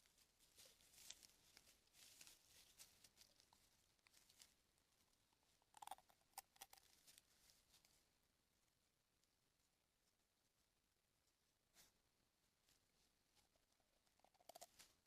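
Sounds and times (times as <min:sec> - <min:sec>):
faint clicks and rustles: 0:00.0 - 0:08.1.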